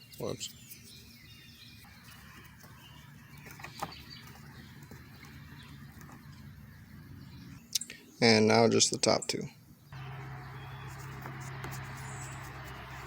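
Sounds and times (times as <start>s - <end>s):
faint bird chirping: 0.0s - 13.0s
low steady hum: 9.9s - 13.0s.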